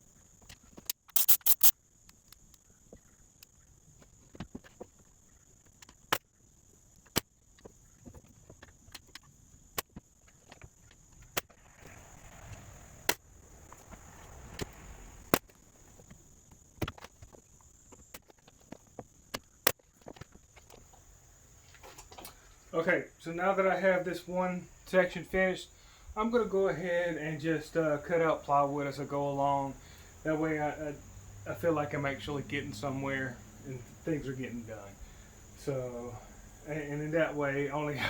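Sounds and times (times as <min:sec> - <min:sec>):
faint high hiss: 0:01.0 - 0:02.0, 0:11.6 - 0:16.4, 0:20.9 - 0:38.0.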